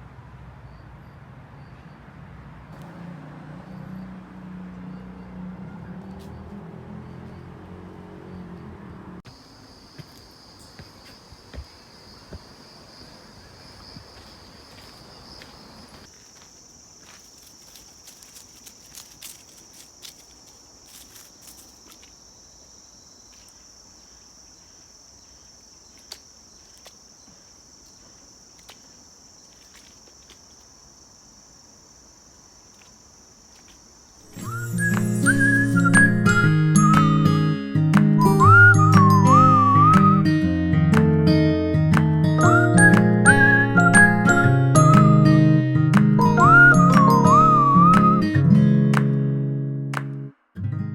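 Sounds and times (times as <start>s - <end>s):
insects droning: 0.0s - 37.4s
faint outdoor background noise: 0.0s - 50.9s.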